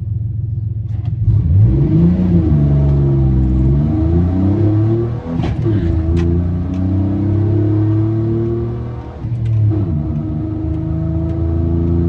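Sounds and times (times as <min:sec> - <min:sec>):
truck engine at full throttle: 0:00.5 - 0:12.0.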